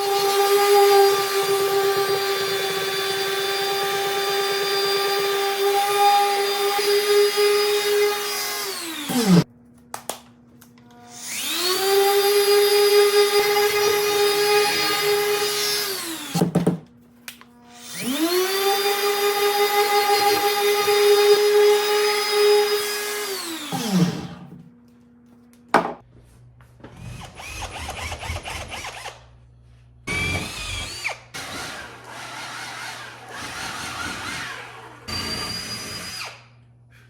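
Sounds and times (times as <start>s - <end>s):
power tool motor running: 0.0s - 9.4s.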